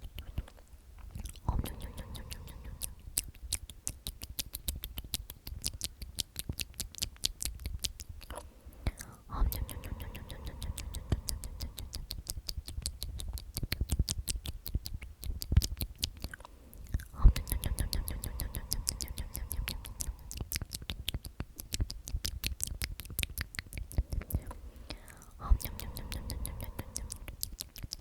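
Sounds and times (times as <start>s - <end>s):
wet mouth clicks and smacks: 0.0s - 28.0s
person whispering: 1.2s - 3.2s, 8.3s - 12.2s, 16.2s - 20.8s, 23.8s - 28.0s.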